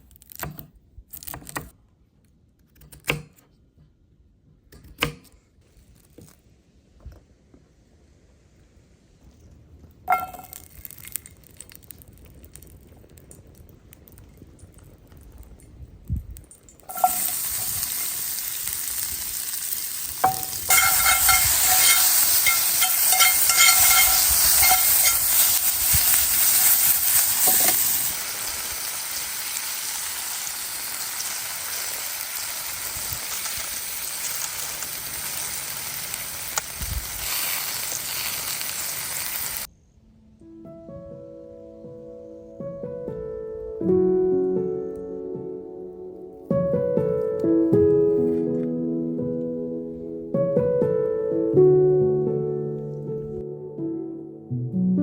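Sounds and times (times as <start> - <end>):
food sizzling in a pan: 10.1 - 12.8, 16.9 - 39.7.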